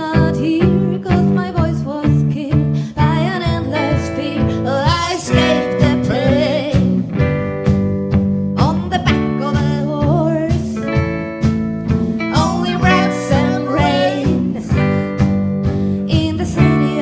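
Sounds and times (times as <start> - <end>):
person singing: 0.0 - 7.0, 12.3 - 14.9
guitar: 0.0 - 17.0
drum beat: 10.8 - 15.6.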